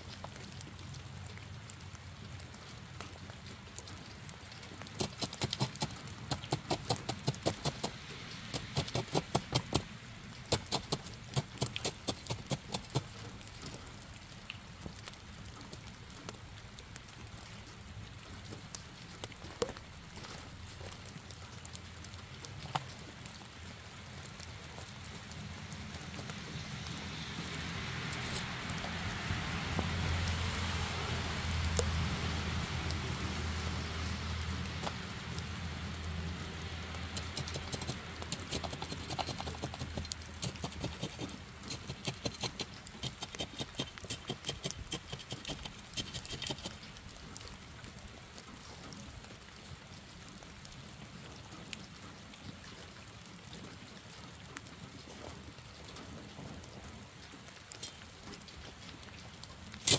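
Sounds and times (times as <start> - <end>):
light rain pattering: 0.0 - 59.9
quick irregular ticks: 2.6 - 23.6, 24.2 - 47.5.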